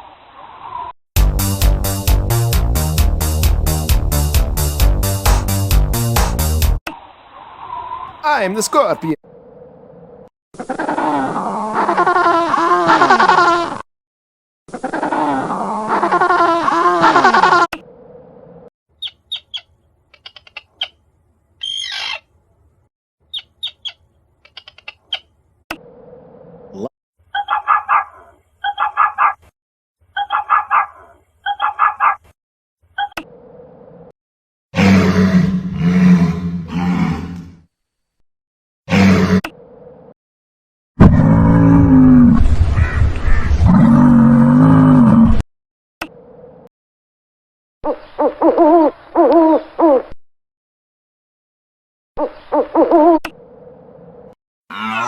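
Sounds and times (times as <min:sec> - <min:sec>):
owl hooting: 0:21.6 - 0:22.2
dog barking: 0:27.4 - 0:29.4, 0:30.3 - 0:32.2.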